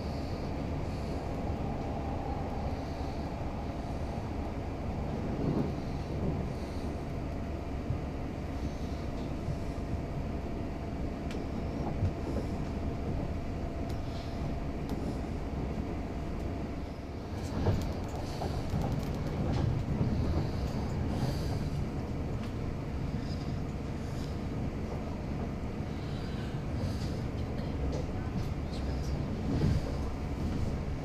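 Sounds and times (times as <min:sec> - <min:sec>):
train rumble: 0:00.0 - 0:31.0
wheels clacking on rails: 0:17.3 - 0:31.0.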